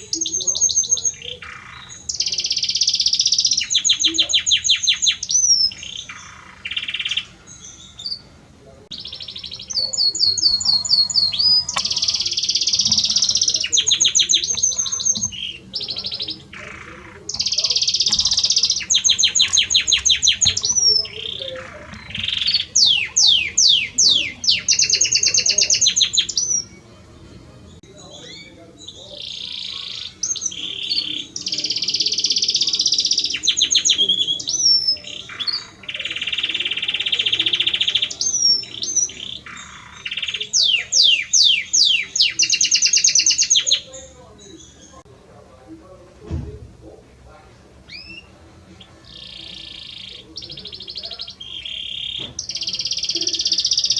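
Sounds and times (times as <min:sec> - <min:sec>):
canary singing trills: 0:00.0 - 0:45.1, 0:47.8 - 0:53.9.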